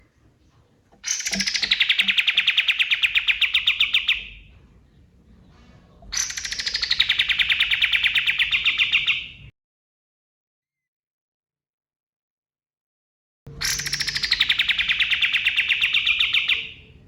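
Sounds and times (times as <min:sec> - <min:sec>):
songbird singing fast trills: 0:01.0 - 0:04.4, 0:13.6 - 0:16.8.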